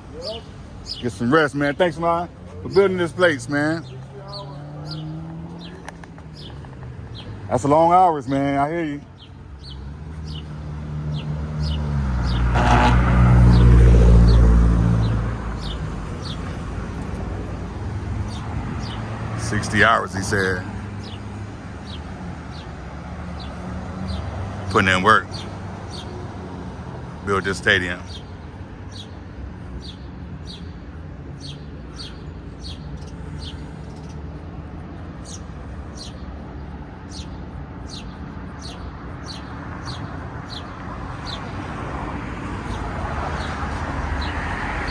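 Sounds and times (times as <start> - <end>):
road traffic rumble: 0.0 - 44.9
vehicle driving past: 9.6 - 27.2.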